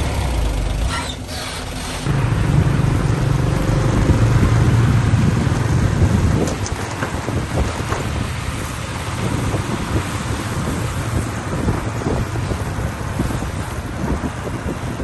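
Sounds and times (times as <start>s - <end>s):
diesel machinery rumbling: 0.0s - 15.0s
wind buffeting microphone: 2.0s - 15.0s.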